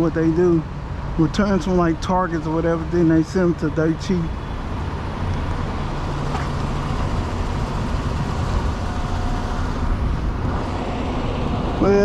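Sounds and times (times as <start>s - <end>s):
truck diesel engine running: 0.0s - 12.0s
faint steady whine: 1.2s - 12.0s.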